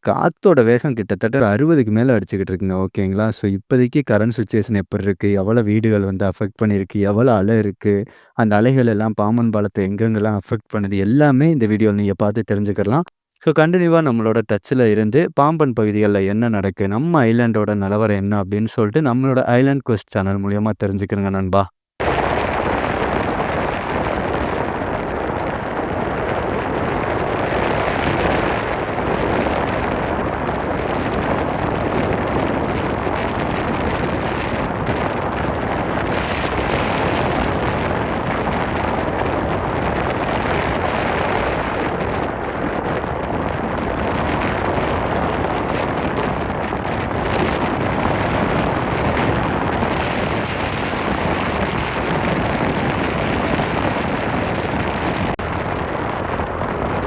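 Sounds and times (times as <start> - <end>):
strong wind on microphone: 22.0 - 57.0.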